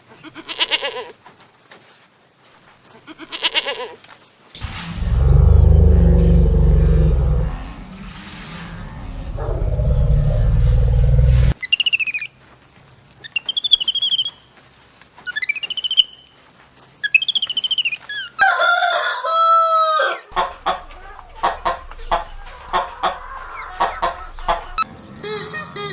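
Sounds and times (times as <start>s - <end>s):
low rumbling animal sound: 4.6s - 11.6s, 20.3s - 24.8s
rooster crowing: 18.4s - 20.3s
hens clucking: 20.0s - 24.9s.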